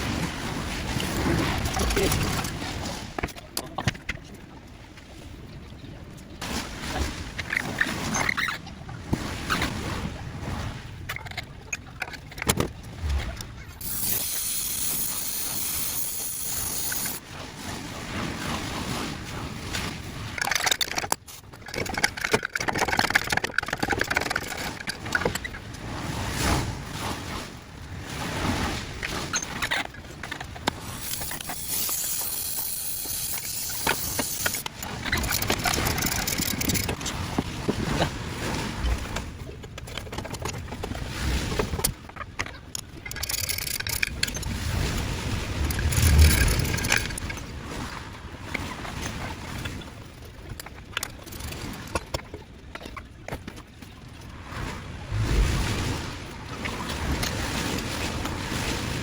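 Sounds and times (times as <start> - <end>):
steady hiss: 13.8 - 17.2, 31.0 - 34.6.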